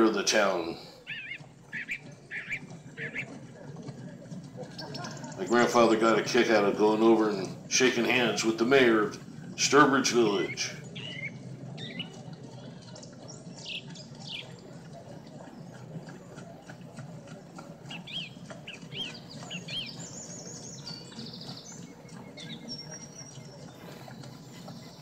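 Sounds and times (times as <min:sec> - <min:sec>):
songbird chirping: 0:00.0 - 0:25.0.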